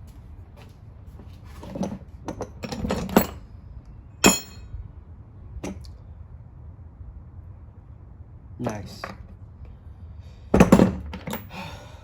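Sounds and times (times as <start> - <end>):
metal tools clanking: 4.2 - 4.7.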